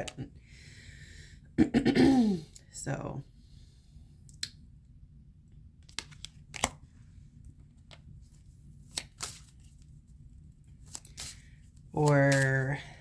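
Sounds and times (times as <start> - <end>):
low steady hum: 0.0 - 13.0
cards snapping and flicking: 5.9 - 6.8, 8.8 - 9.6.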